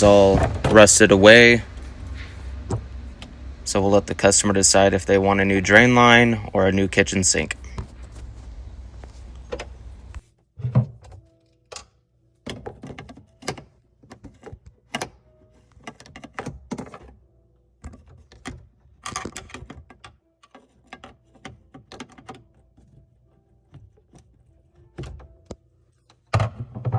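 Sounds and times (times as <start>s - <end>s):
irregular knocks and clunks: 0.0s - 3.5s, 26.2s - 26.9s.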